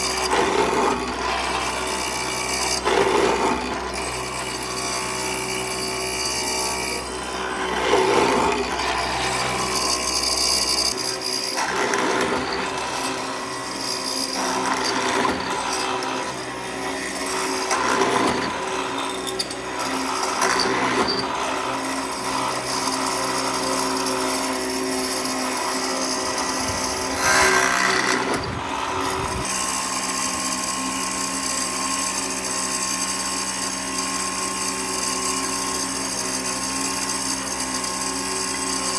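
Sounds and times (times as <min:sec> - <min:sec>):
power tool motor hum: 0:00.0 - 0:38.9
rasping grinding on wood: 0:05.4 - 0:29.6.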